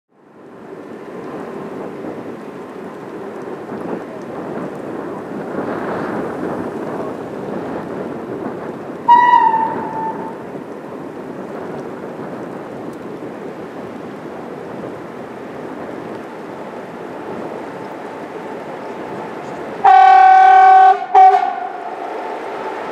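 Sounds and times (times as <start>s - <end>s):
low rumbling noise: 0.2s - 22.9s.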